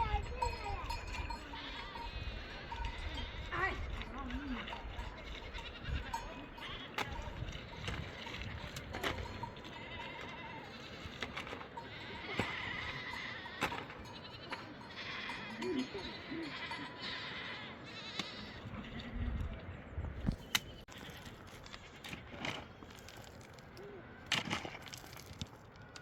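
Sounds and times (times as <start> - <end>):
livestock bleating: 0.0 - 7.8, 9.1 - 19.1.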